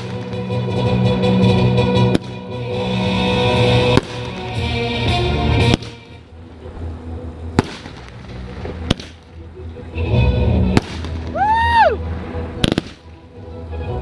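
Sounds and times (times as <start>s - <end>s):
fireworks bursting with bangs: 0.0s - 6.9s, 7.5s - 9.5s, 10.7s - 11.6s, 12.2s - 13.3s
background music: 0.0s - 14.0s.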